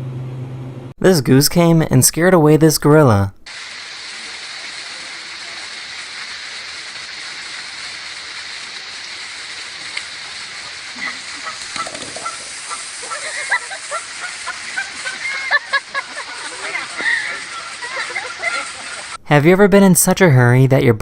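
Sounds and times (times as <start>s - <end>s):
steady hiss: 3.5s - 19.2s
goose honking: 9.7s - 19.2s.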